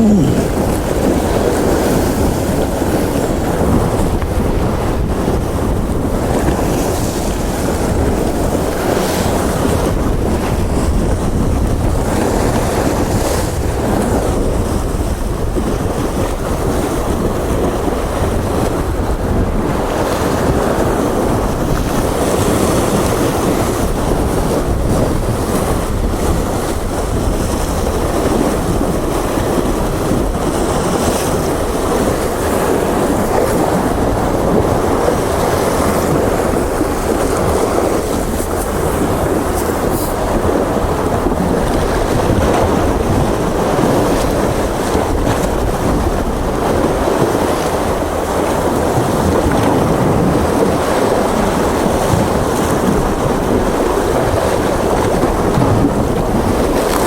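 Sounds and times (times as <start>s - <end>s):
sea swell washing on shore: 0.0s - 57.0s
wind on microphone: 0.0s - 57.0s.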